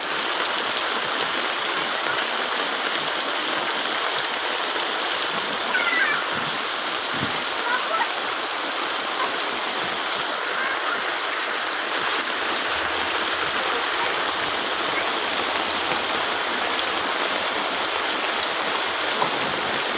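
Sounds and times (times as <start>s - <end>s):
heavy rain falling: 0.0s - 19.9s.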